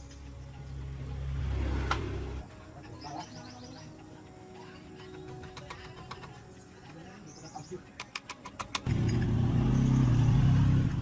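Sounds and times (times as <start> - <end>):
sharp clicks: 8.0 - 8.9
engine running with low hum: 8.8 - 11.0.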